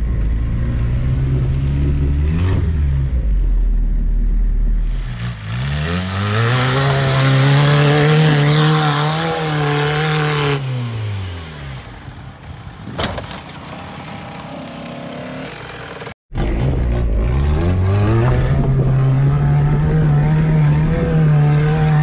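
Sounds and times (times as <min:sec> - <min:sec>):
car engine revving: 0:00.0 - 0:12.0, 0:14.7 - 0:22.0
wheels spinning in sand: 0:11.8 - 0:16.9.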